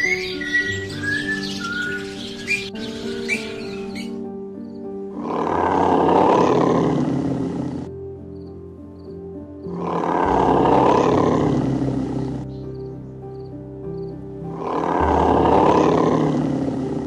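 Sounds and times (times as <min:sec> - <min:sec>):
animal roaring: 0:05.1 - 0:07.9, 0:09.6 - 0:12.6, 0:14.5 - 0:17.0.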